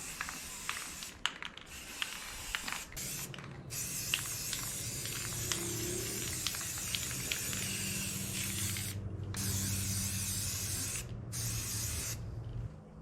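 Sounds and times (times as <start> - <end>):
spray paint hissing: 0.0 - 12.2
low steady hum: 4.6 - 13.0.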